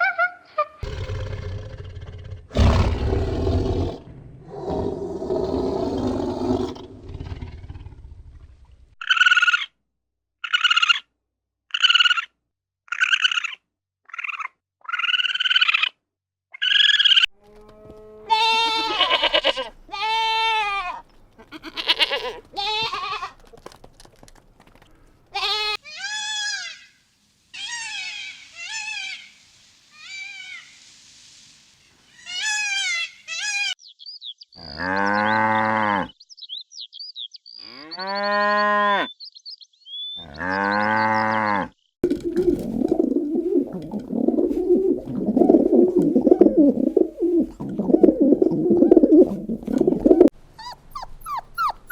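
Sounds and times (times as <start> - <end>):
short bleating calls: 17.9 - 23.4, 25.4 - 26.9.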